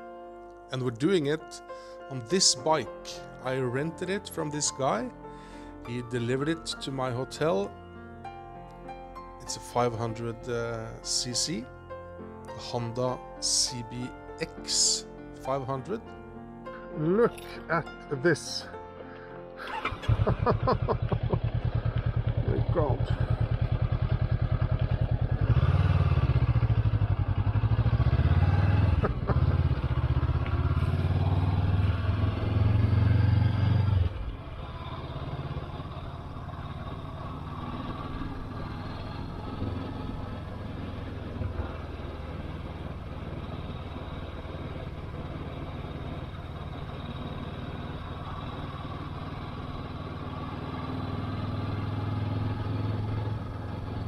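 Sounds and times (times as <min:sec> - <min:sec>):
motorcycle engine running: 0:19.7 - 0:54.0.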